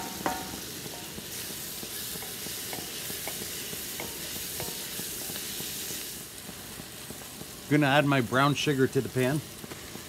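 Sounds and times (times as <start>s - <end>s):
wooden spatula knocking pan: 0.0s - 5.8s
vegetables sizzling in butter: 0.0s - 10.0s.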